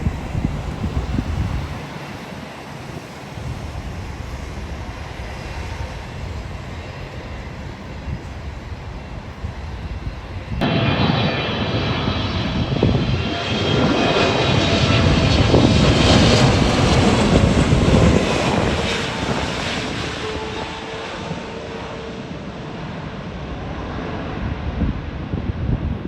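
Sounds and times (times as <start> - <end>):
jet airliner passing: 0.0 - 26.0.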